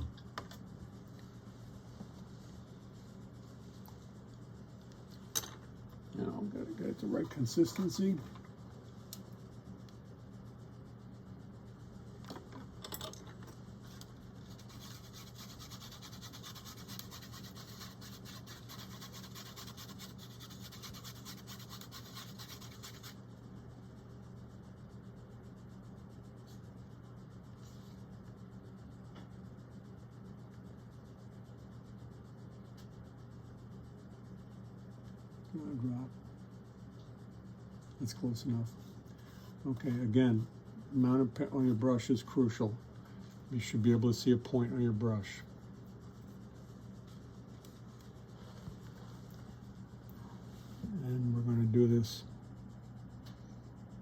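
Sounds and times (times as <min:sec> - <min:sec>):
paint scratching on palette: 0:14.4 - 0:23.2.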